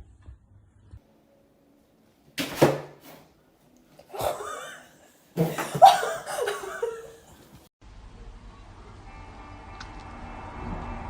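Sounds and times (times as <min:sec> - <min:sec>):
person laughing: 0:04.1 - 0:07.4.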